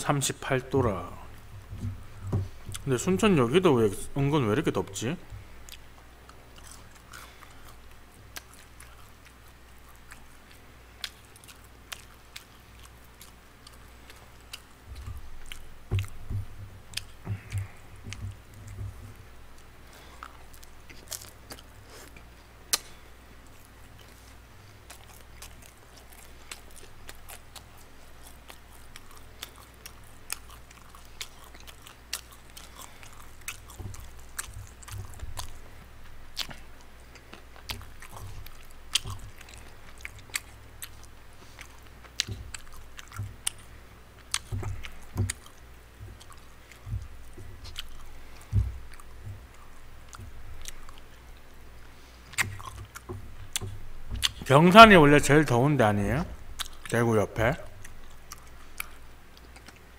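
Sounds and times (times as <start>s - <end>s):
person chewing: 0.8s - 3.0s, 5.1s - 55.5s, 56.3s - 59.9s
low thumps: 1.5s - 2.9s.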